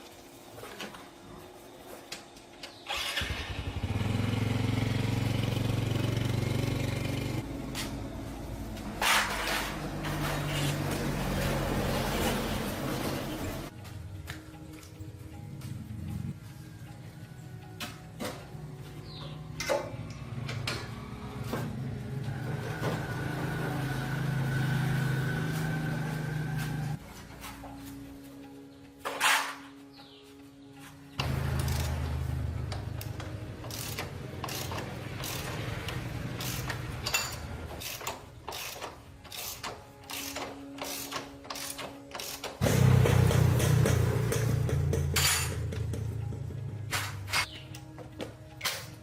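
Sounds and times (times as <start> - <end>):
small motorcycle engine: 2.8 - 7.7, 20.0 - 27.0, 31.2 - 40.9, 42.4 - 46.7.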